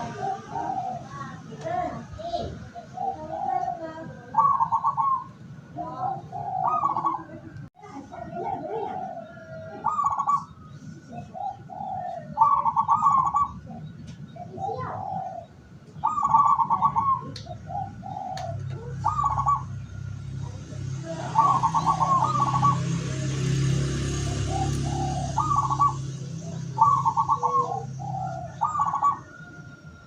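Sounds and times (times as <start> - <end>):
dove cooing: 0.0 - 30.0.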